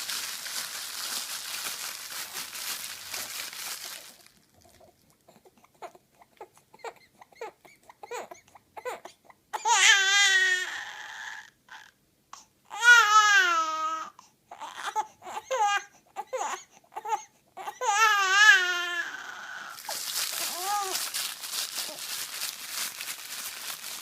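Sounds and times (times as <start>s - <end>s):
baby crying: 5.4s - 12.0s, 12.7s - 21.2s.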